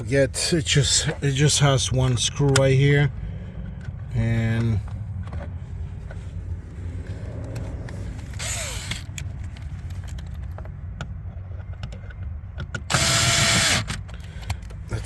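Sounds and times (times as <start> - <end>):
steady low hum: 0.0 - 15.0
power screwdriver driving screw: 8.4 - 9.2, 12.8 - 14.0.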